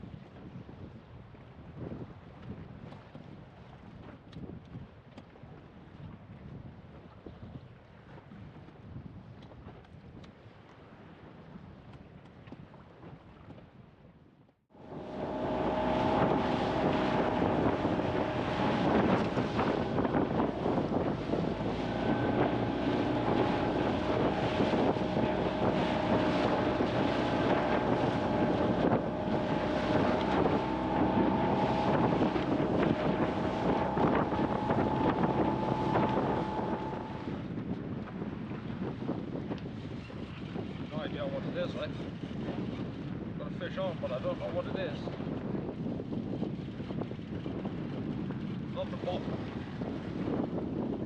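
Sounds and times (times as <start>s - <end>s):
wind buffeting microphone: 0.0s - 13.8s, 14.8s - 51.0s
outboard motor running: 14.7s - 38.7s.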